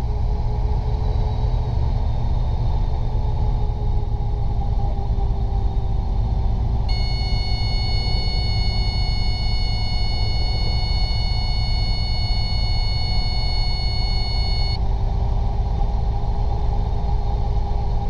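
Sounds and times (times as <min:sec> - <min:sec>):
high steady tone: 0:06.9 - 0:14.8.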